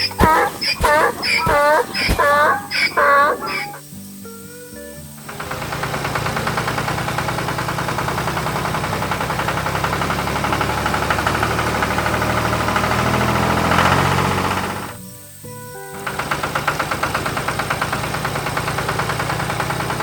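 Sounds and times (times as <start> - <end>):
tractor engine pulsing: 0.0 - 3.8, 5.2 - 15.0, 16.0 - 20.0.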